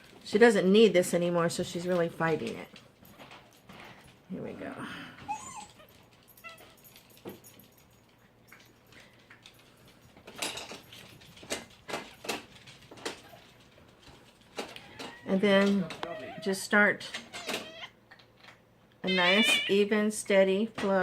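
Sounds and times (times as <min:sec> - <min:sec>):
puppy squeaking: 0:05.3 - 0:06.8, 0:16.0 - 0:16.6, 0:17.3 - 0:18.0, 0:19.1 - 0:19.8.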